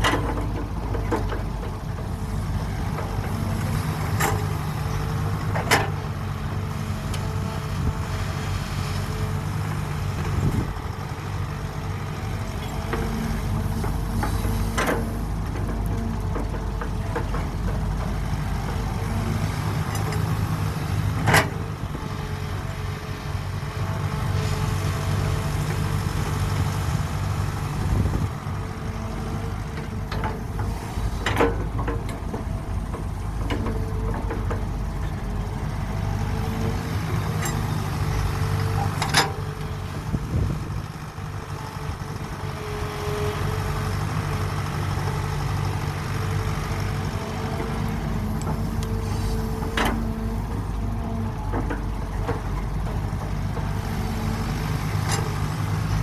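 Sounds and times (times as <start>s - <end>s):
diesel machinery running: 0.0s - 56.0s.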